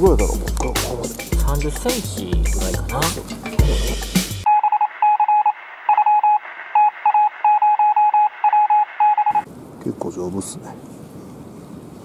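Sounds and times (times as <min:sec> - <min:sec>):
background music with voice: 0:00.0 - 0:04.4
electronic morse code beeping: 0:04.4 - 0:09.5.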